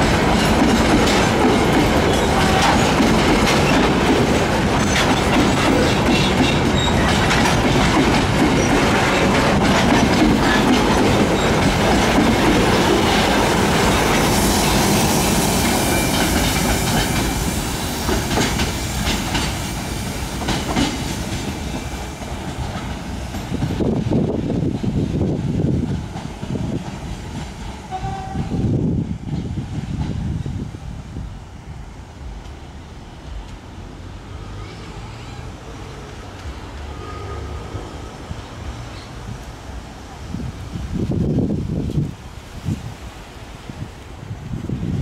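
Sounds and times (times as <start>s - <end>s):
train wheels clicking over rail joints: 0.0s - 30.4s.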